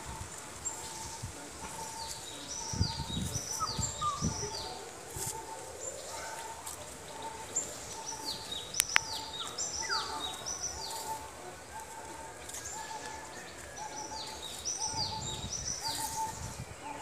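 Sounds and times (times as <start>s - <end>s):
birds whistling: 7.6s - 11.1s, 12.7s - 16.5s.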